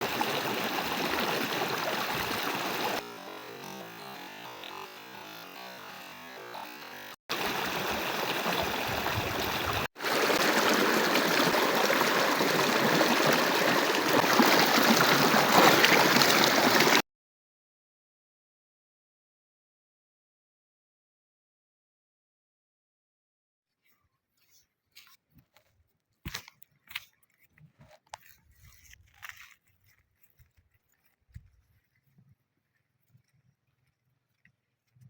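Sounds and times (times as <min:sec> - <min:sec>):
river water rushing: 0:07.3 - 0:17.0.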